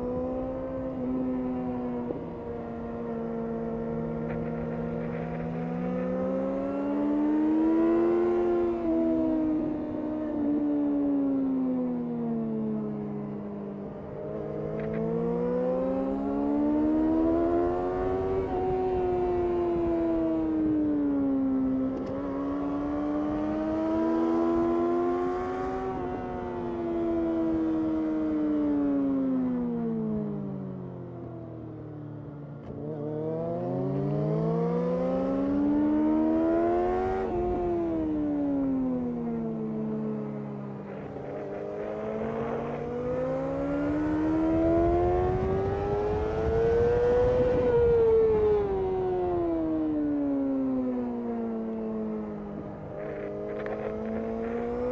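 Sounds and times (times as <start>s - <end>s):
motorcycle engine revving: 0.0s - 10.4s, 32.6s - 54.9s.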